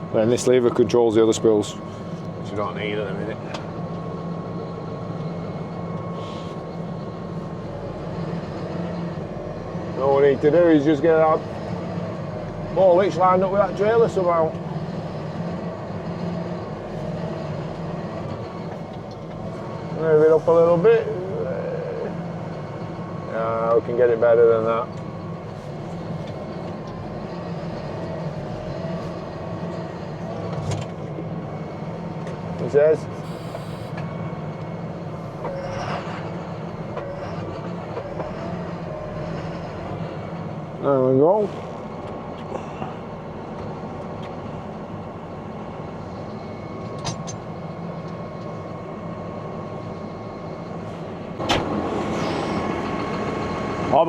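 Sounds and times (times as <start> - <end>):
tractor engine running: 0.0 - 54.0
sharp clunk: 51.4 - 51.8.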